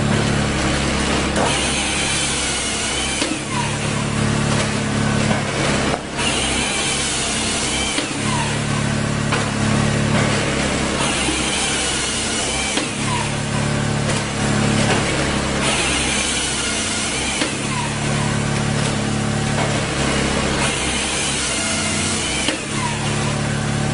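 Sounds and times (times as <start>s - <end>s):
log splitting machine running: 0.0s - 23.9s.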